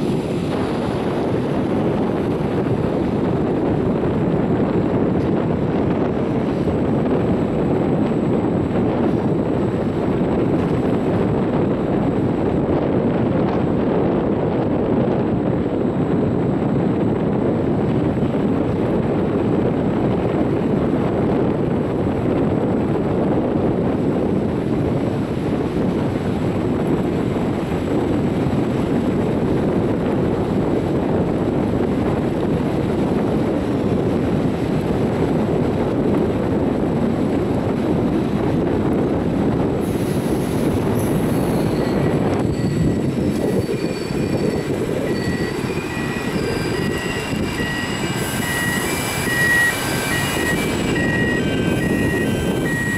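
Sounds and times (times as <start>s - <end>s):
train rumble from inside: 0.0s - 52.9s
high-pitched wheel squeals: 40.2s - 52.9s.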